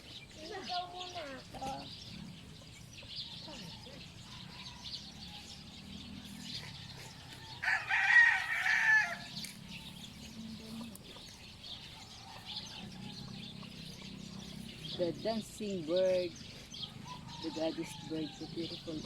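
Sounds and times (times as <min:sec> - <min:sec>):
rooster crowing: 0:06.6 - 0:09.4.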